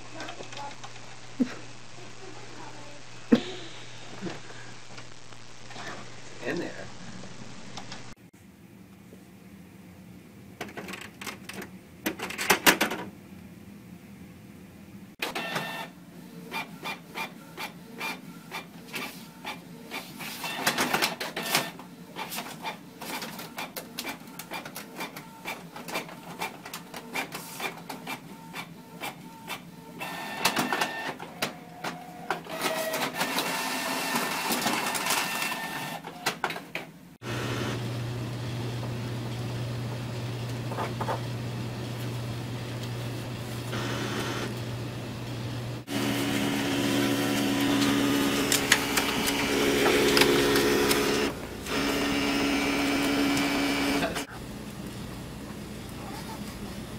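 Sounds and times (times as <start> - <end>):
inkjet printer clicking and whirring: 15.2 - 15.9, 16.5 - 36.9, 45.8 - 54.3.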